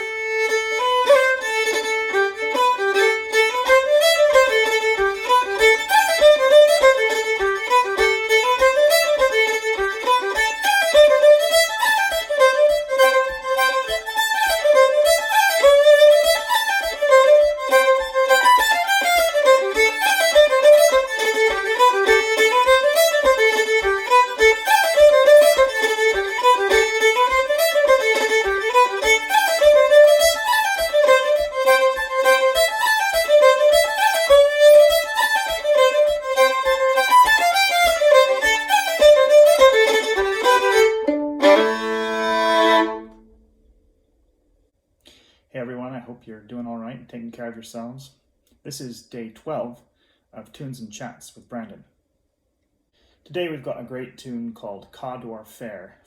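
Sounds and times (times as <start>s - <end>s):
solo fiddle dance tune: 0.0s - 43.3s
low beat tapping: 3.6s - 41.9s.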